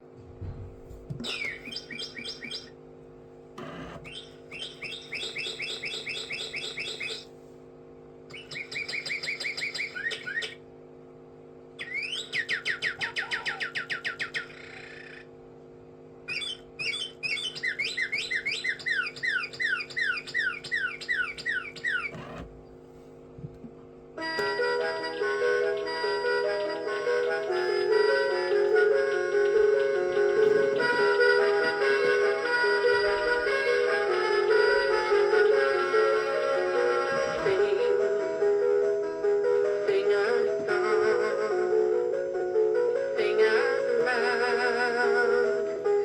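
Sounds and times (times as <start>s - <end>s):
steady low hum: 0.0s - 46.0s
mechanical bird toy whistling: 1.2s - 2.8s, 3.6s - 7.3s, 8.3s - 10.6s, 11.8s - 15.3s, 16.3s - 22.5s.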